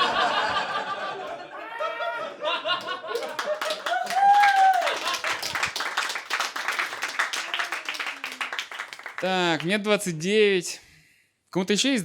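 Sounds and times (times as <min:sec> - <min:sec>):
audience applauding and laughing: 0:00.0 - 0:09.5
person cheering loudly: 0:03.1 - 0:05.6.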